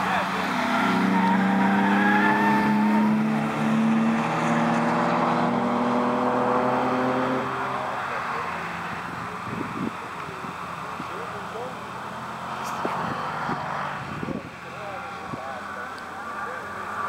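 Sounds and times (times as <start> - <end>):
car engine pulling under load: 0.0 - 17.0
tires squealing: 0.0 - 17.0.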